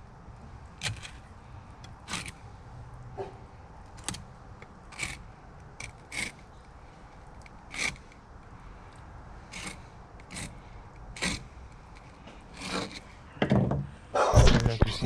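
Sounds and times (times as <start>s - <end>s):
knife scraping fish scales: 5.8s - 6.4s, 7.7s - 8.1s, 9.5s - 13.2s.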